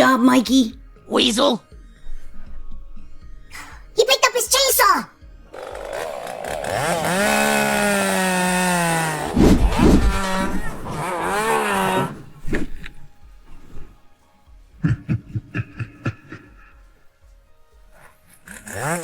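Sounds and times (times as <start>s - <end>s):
chainsaw engine revving: 5.5s - 13.0s, 18.0s - 19.0s
heavy thumps: 9.2s - 14.0s.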